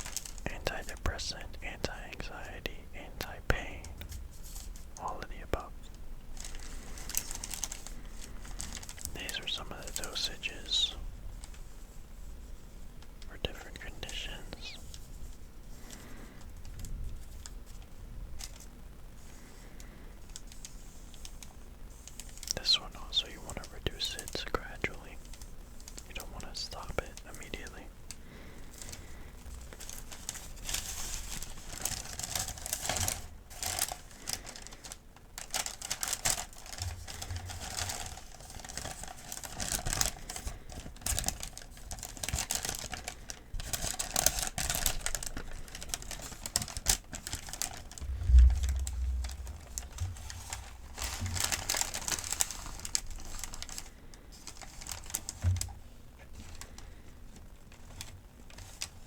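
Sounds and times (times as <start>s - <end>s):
paper crinkling and rustling: 0.0s - 1.4s, 6.3s - 12.8s, 13.4s - 59.0s
low thump: 48.0s - 50.3s.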